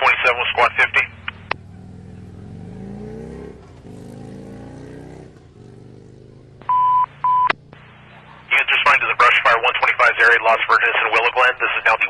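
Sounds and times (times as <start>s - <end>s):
steady radio alert tone: 0.0s - 1.6s, 6.7s - 12.0s
vehicle engine revving: 0.7s - 8.6s.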